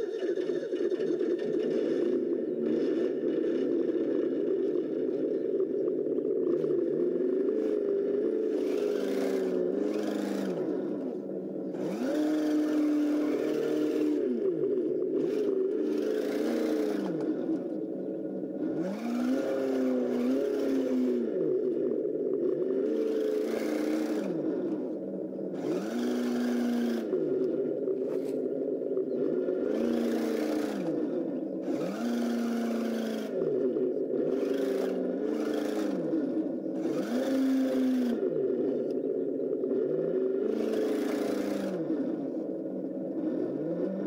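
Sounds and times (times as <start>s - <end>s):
simulated engine revving: 1.0s - 44.0s
electric drive whir: 1.2s - 44.0s.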